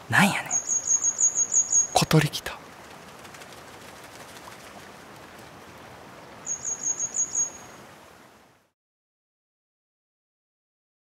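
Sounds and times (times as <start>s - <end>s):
soft outdoor hiss: 0.0s - 8.8s
small bird chirping: 0.3s - 2.2s, 6.5s - 7.7s.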